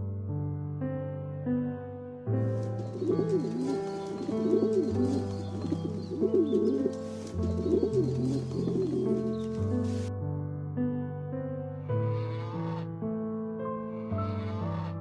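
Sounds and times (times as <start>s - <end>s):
background music: 0.0s - 15.0s
pigeon cooing: 2.8s - 10.1s.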